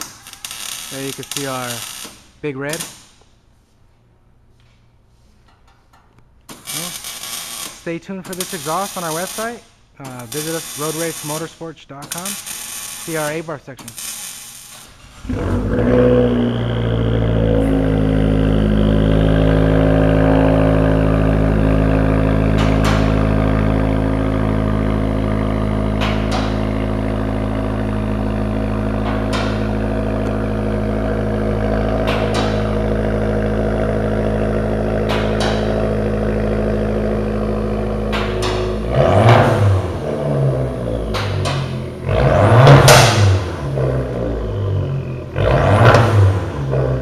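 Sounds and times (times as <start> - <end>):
car engine revving: 14.9 - 47.0
car engine idling: 15.0 - 47.0.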